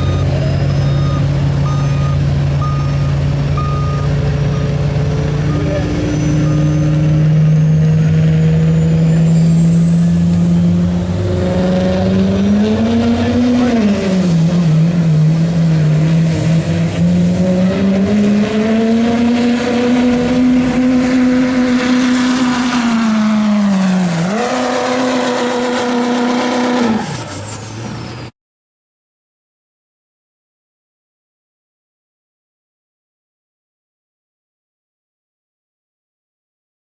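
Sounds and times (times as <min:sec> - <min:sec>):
diesel engine under load: 0:00.0 - 0:28.3.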